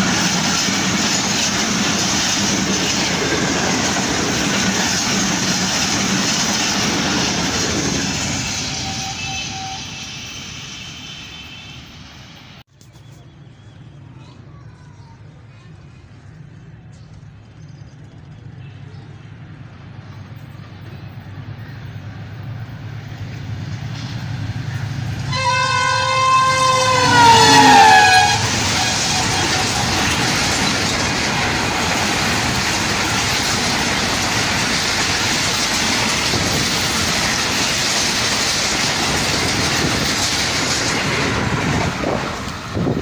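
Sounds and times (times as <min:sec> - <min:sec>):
locomotive rumble: 0:00.0 - 0:12.6, 0:14.8 - 0:43.0
wheel and rail rush: 0:00.0 - 0:43.0
train horn: 0:08.5 - 0:11.9, 0:25.3 - 0:30.2.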